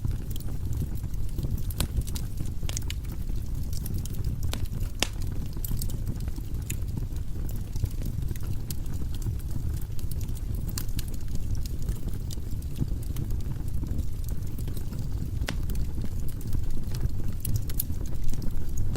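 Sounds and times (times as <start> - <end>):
logs crackling and popping: 0.0 - 18.9
low rumble of flames: 0.0 - 18.9.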